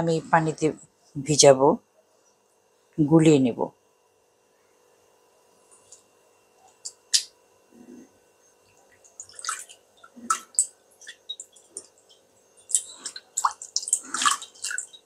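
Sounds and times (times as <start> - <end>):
small water splashes and drips: 8.9 - 15.0.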